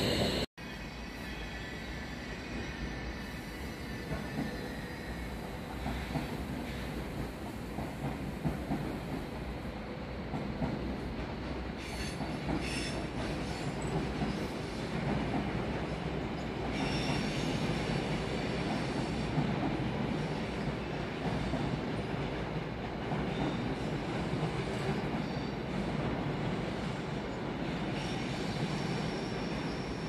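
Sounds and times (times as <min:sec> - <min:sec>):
train wheels squealing: 0:00.0 - 0:07.3, 0:11.8 - 0:19.4, 0:24.7 - 0:25.9, 0:26.8 - 0:30.0
train rumble: 0:00.0 - 0:30.0.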